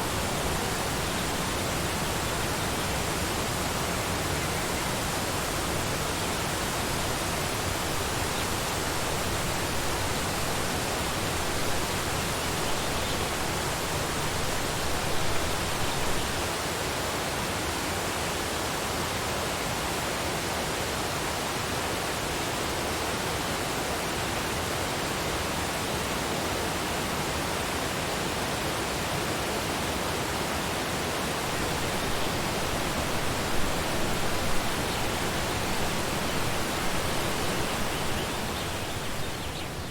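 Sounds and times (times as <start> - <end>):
waterfall rushing: 0.0 - 16.7, 29.0 - 39.9.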